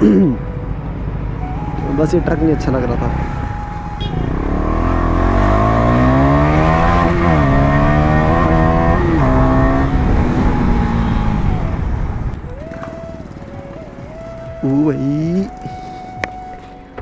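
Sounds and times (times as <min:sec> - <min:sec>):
motorcycle engine accelerating: 0:02.9 - 0:14.6.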